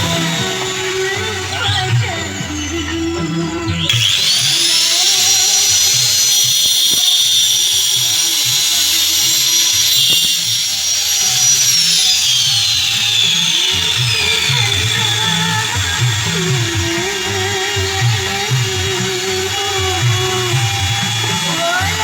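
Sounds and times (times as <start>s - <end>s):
background music: 0.0s - 6.2s
power tool motor whining: 0.0s - 22.0s.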